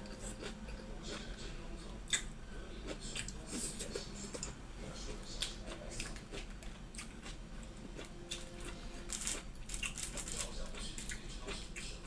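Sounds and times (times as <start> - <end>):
small food crunches: 8.0 - 12.0.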